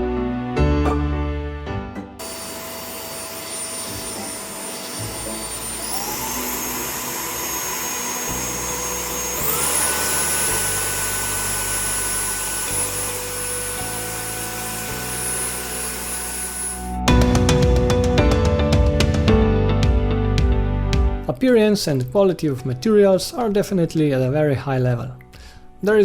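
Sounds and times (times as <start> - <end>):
cordless vacuum cleaner whine: 2.2 - 17.1.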